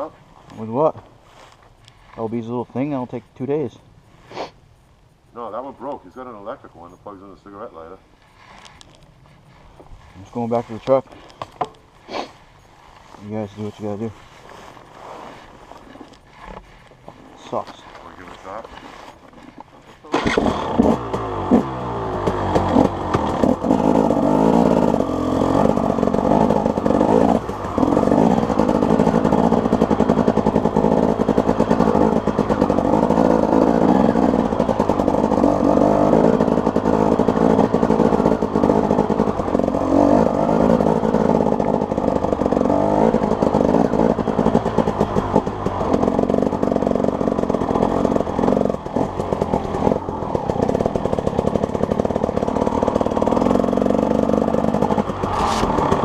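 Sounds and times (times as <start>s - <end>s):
off-road vehicle engine running: 20.0s - 56.0s.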